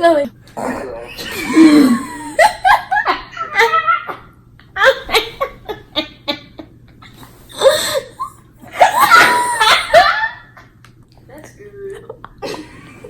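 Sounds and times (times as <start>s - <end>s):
people laughing: 1.4s - 7.1s, 8.7s - 10.7s, 12.0s - 13.0s.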